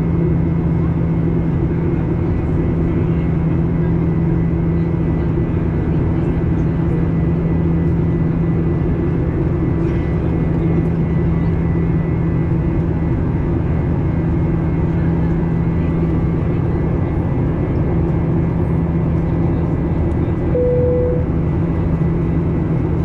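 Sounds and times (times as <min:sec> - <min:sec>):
aircraft cabin engine noise: 0:00.0 - 0:23.0
short single tone: 0:20.5 - 0:21.3.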